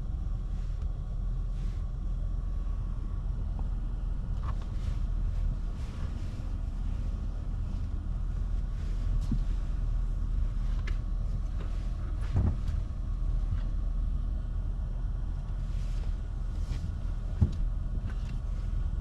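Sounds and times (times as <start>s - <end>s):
pickup truck engine rumble: 0.0s - 19.0s.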